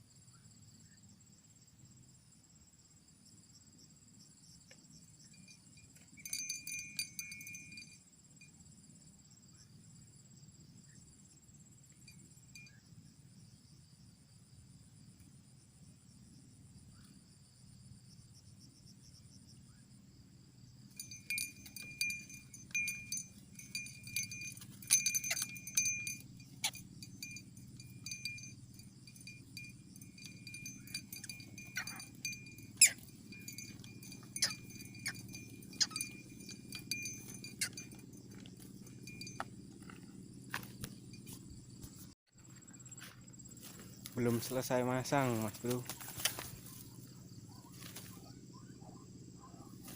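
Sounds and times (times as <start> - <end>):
crickets trilling: 0.0 - 49.9
clinking jangling clicks: 5.3 - 8.0, 21.0 - 41.4.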